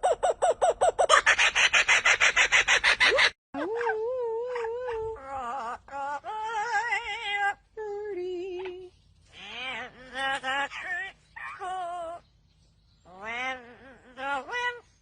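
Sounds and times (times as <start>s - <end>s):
birds warbling calls: 8.9s - 15.0s.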